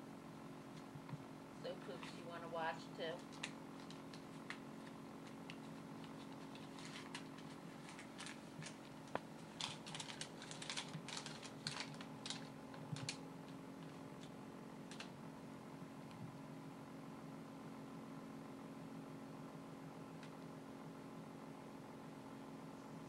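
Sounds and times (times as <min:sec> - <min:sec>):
small objects clicking and rustling: 0:05.2 - 0:13.2.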